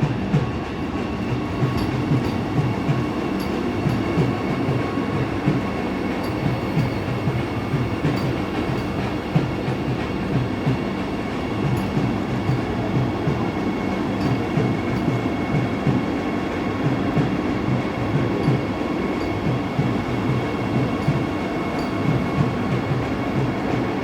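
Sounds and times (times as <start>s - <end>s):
train rumbling on track: 0.0s - 24.0s.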